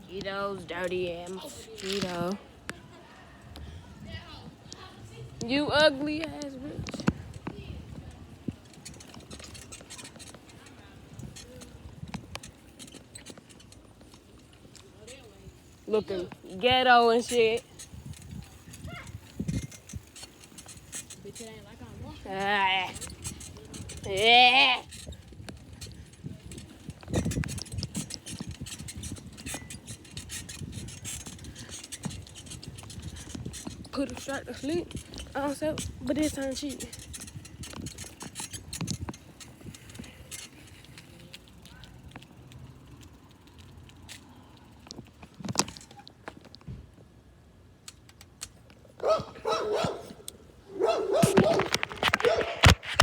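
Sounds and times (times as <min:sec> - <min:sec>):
bicycle clicking and rattling: 0:00.0 - 0:53.0
dog barking: 0:49.0 - 0:52.5.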